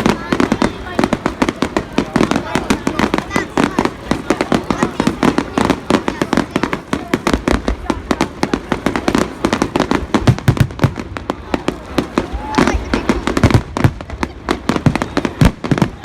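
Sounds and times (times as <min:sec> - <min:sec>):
firecrackers crackling: 0:00.0 - 0:16.0.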